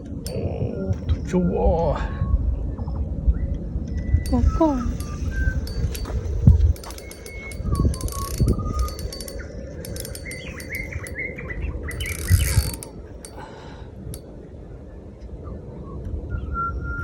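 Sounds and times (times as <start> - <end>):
fishing reel ratcheting: 4.3 - 11.2, 11.9 - 14.2.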